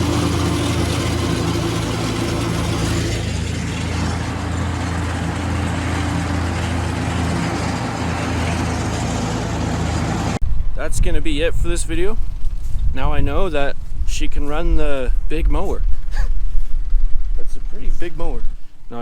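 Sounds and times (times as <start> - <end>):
tractor engine running under load: 0.0 - 10.4.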